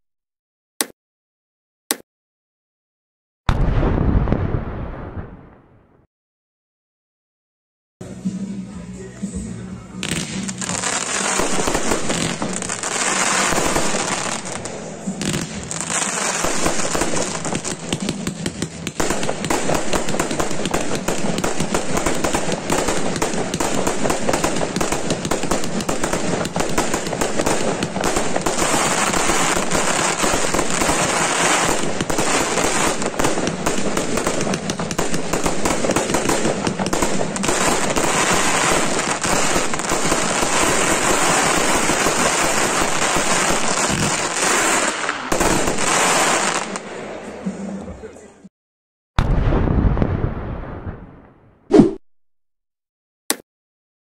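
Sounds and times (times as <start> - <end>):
firework cake rapid volley: 9.4 - 48.1.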